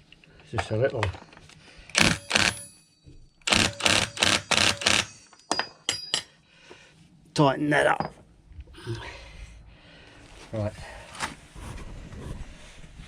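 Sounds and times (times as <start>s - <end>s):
ratchet wrench ratcheting: 1.9s - 2.6s, 3.5s - 5.3s.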